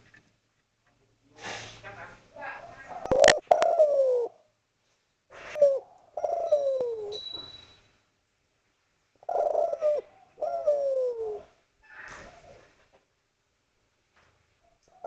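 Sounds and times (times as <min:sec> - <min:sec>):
dove cooing: 0:02.6 - 0:04.4, 0:05.3 - 0:07.2, 0:09.2 - 0:12.7.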